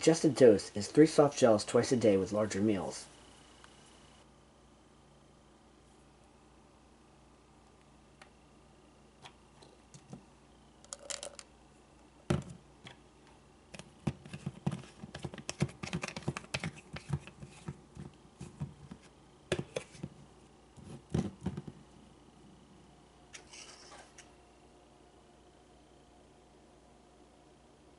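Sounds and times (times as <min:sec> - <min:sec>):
capsules rattling in bottle: 0:10.8 - 0:11.5.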